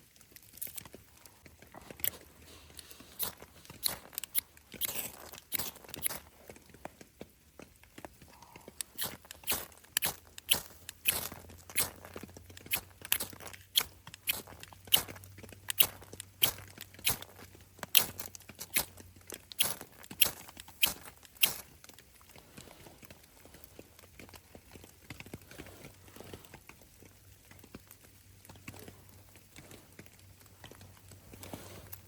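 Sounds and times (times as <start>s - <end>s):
faint crunches and rustles: 0.0s - 32.0s
footsteps crunching in snow: 1.7s - 6.6s, 8.7s - 15.2s, 31.2s - 32.0s.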